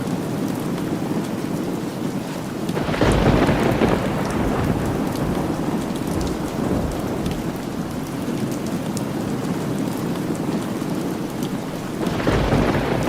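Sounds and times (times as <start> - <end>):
steady rain: 0.0 - 13.0
thunder clap rumbling: 2.8 - 8.6, 11.6 - 13.0.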